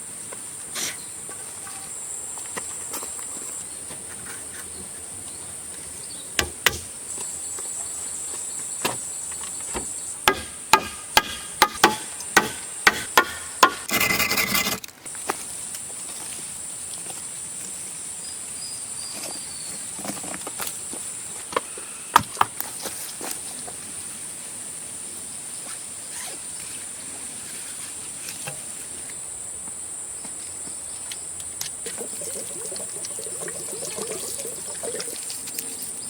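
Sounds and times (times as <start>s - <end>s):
insects chirring: 0.1s - 36.0s
scrape or rattle: 13.8s - 14.9s.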